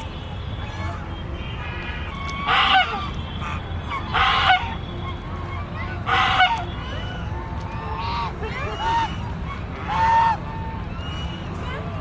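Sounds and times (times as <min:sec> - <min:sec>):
duck quacking: 0:01.6 - 0:04.8, 0:06.0 - 0:06.6, 0:09.8 - 0:10.4.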